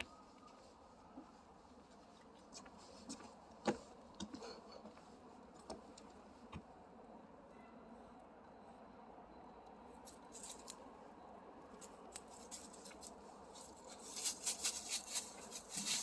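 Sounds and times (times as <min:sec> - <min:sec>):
faint clicks and taps: 0:02.6 - 0:06.7.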